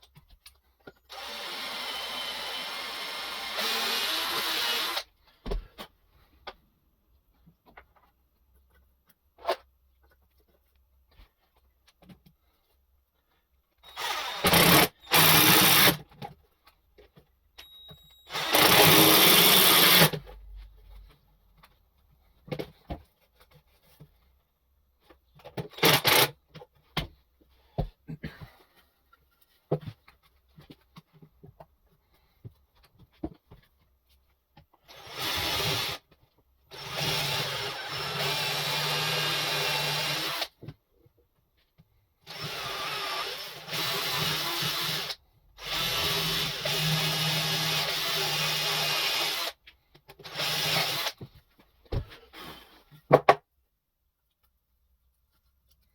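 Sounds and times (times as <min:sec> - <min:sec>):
power drill bursts: 0:01.1 - 0:05.1, 0:13.8 - 0:16.0, 0:18.3 - 0:20.2, 0:25.7 - 0:26.3, 0:36.7 - 0:40.5, 0:42.3 - 0:49.6, 0:50.2 - 0:51.2.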